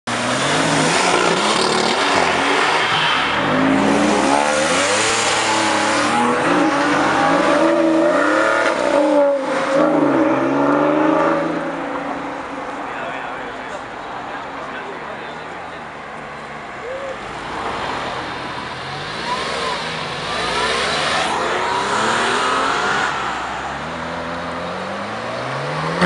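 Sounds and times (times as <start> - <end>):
car engine accelerating hard: 0.1 - 11.8, 17.3 - 26.0.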